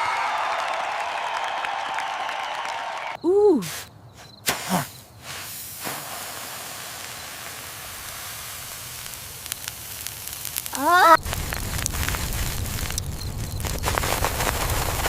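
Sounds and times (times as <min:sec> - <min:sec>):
steady hiss: 0:03.6 - 0:15.0
short pitched cry: 0:10.7 - 0:11.2.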